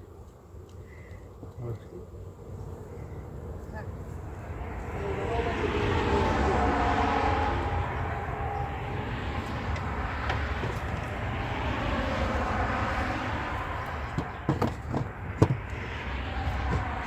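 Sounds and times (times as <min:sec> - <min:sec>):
low outdoor rumble: 0:00.0 - 0:17.0
sharp knocks and clicks: 0:09.7 - 0:11.2, 0:14.1 - 0:15.8, 0:16.5 - 0:17.0.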